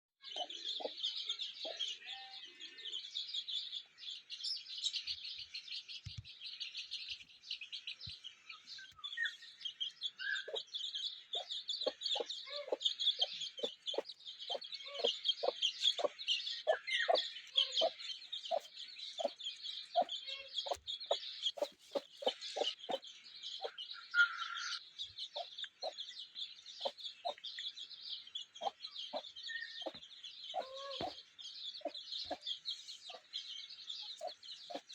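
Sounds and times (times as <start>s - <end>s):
chickens clucking: 0.2s - 2.0s, 10.3s - 10.8s, 11.4s - 19.4s, 20.0s - 23.8s, 26.8s - 27.4s, 28.6s - 31.2s, 31.8s - 33.3s, 34.1s - 34.9s
high chirping: 0.2s - 2.2s, 10.3s - 24.3s, 26.8s - 27.4s, 28.4s - 33.3s, 33.9s - 34.9s.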